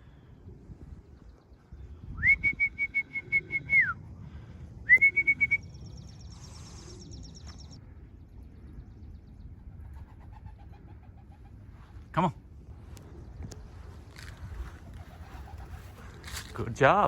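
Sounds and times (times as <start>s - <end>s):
person whistling a warbling call: 2.2s - 4.0s, 4.9s - 5.6s
fast high faint twitter: 4.8s - 10.2s.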